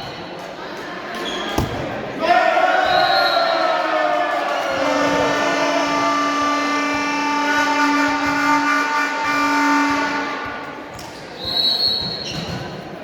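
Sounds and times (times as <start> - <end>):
horn-like blast: 4.7 - 10.8.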